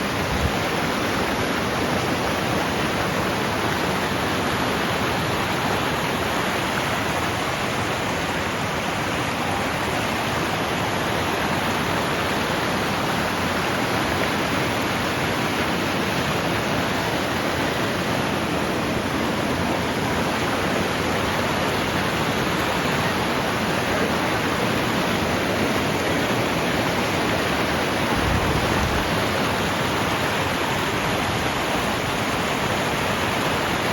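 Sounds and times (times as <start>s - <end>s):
river rushing: 0.0s - 33.9s.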